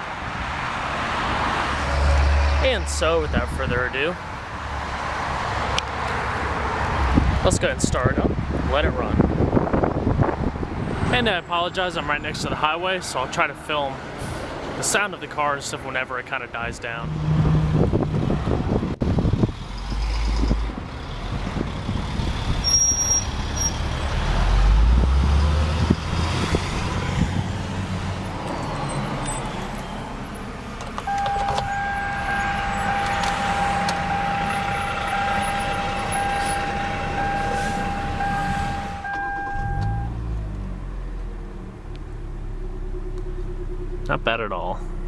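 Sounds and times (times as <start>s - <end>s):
highway traffic: 0.0s - 45.0s
car engine idling: 30.0s - 45.0s
steady high tone: 31.1s - 40.2s.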